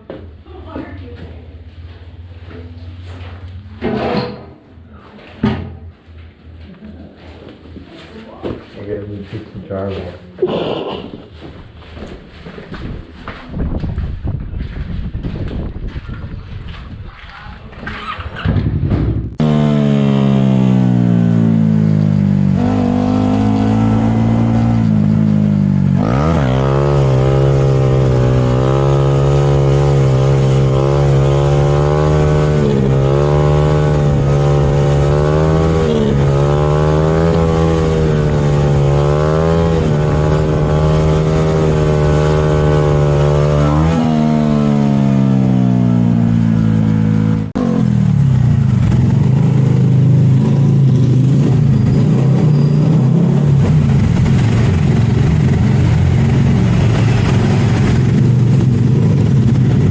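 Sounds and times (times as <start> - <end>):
motorcycle engine revving: 17.7 - 59.9.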